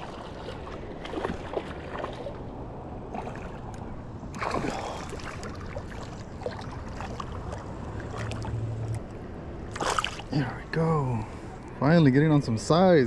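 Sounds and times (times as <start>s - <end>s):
river water sloshing: 0.0s - 10.6s
fish splashing: 4.4s - 8.6s, 9.7s - 10.3s.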